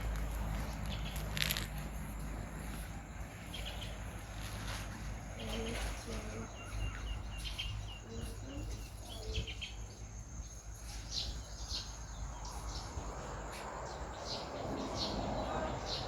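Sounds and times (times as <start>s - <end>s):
steady low rumble: 0.0s - 10.5s
birds chirping: 0.0s - 16.0s.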